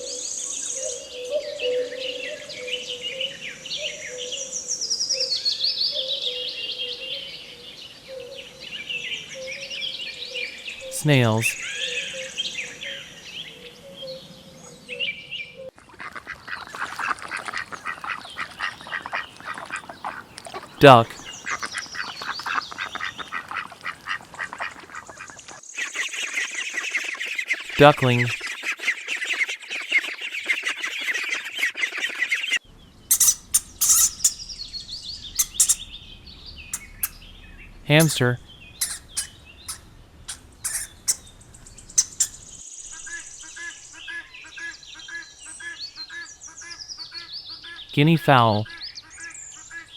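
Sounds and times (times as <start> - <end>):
faint birds chirping: 0.0 - 15.3, 16.1 - 27.0, 32.6 - 49.9
ducks quacking: 15.9 - 25.4, 33.1 - 36.0, 36.7 - 42.5
high chirps: 32.7 - 42.6.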